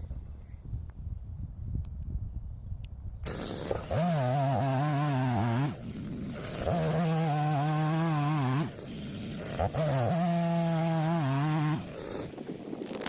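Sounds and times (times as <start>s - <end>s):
two-stroke chainsaw revving: 3.2s - 12.6s.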